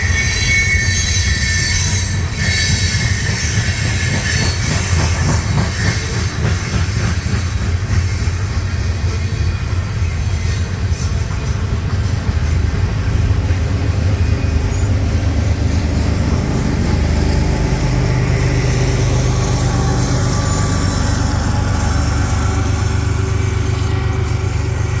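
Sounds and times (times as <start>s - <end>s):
freight train rumbling past: 0.0s - 25.0s.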